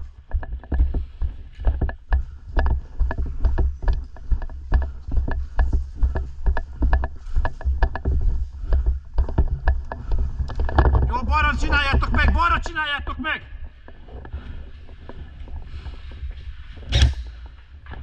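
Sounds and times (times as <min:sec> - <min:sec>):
footsteps: 0:00.0 - 0:12.8.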